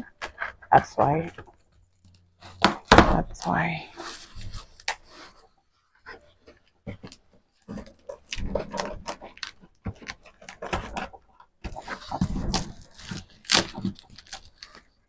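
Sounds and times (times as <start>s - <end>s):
packaging rustling: 6.4s - 15.0s.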